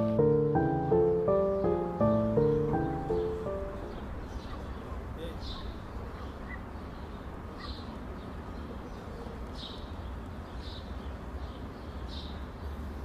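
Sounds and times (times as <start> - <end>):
high bird chirps: 0.0 - 7.9.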